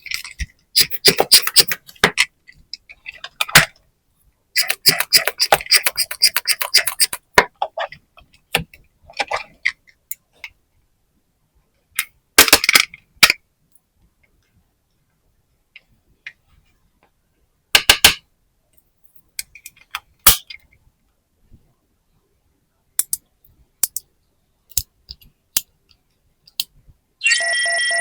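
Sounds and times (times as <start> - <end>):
plastic toy pieces clicking: 0.0 - 2.3, 4.6 - 7.4, 12.4 - 13.4, 23.0 - 23.2, 23.8 - 24.0, 24.7 - 25.7
sharp plastic snap: 23.0 - 23.2, 24.7 - 24.9.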